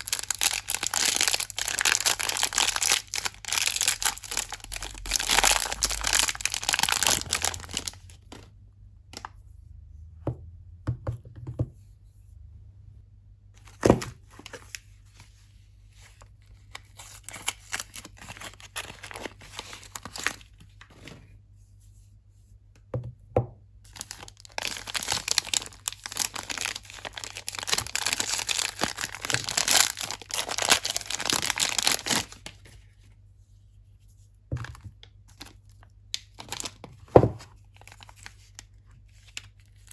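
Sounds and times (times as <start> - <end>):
packaging crinkling and tearing: 0.0 - 8.5, 16.5 - 20.9, 23.9 - 32.8, 34.6 - 36.9, 37.6 - 39.9.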